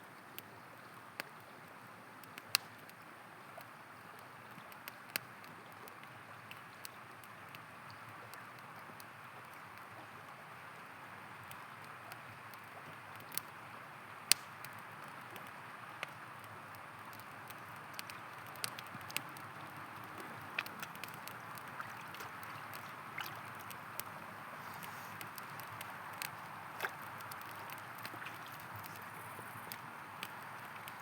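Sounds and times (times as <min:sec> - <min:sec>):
campfire popping and crackling: 0:02.2 - 0:31.0
river flowing: 0:13.6 - 0:31.0.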